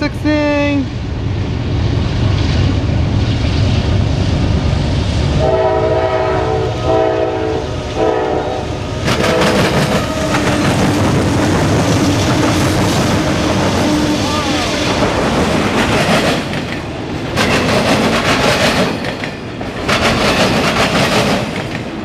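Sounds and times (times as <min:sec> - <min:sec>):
diesel locomotives rumbling: 0:00.0 - 0:22.0
train air horn blasts: 0:05.4 - 0:10.5
train wheels clattering on rails: 0:08.9 - 0:22.0.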